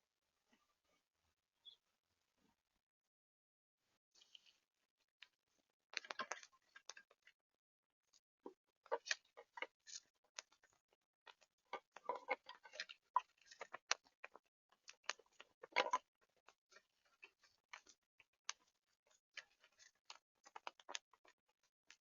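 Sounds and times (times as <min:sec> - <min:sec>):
birds pecking at feeder: 0:06.0 - 0:07.2, 0:08.9 - 0:22.0.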